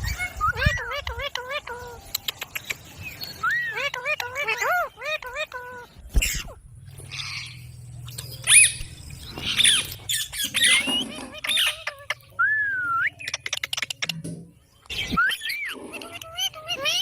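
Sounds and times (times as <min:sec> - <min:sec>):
parrot squawking: 0:03.4 - 0:12.4, 0:15.3 - 0:17.0.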